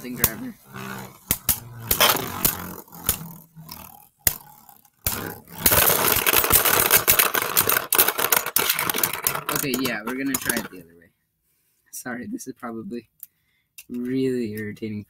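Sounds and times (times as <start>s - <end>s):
spinning tops clattering: 0.0s - 3.5s, 4.2s - 10.8s.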